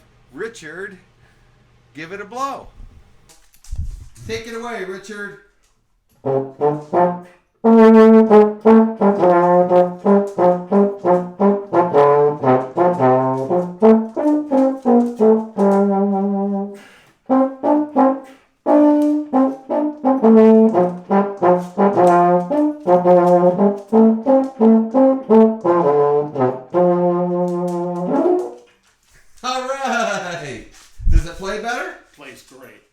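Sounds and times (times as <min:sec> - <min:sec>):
baritone horn playing notes: 0:06.2 - 0:28.6.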